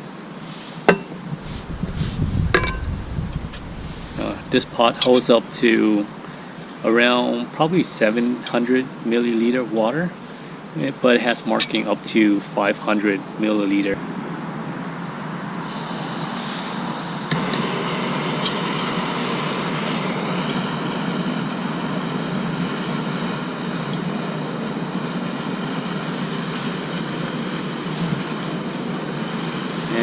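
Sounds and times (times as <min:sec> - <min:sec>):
camping stove gas hissing: 0:00.4 - 0:08.4, 0:15.6 - 0:30.0.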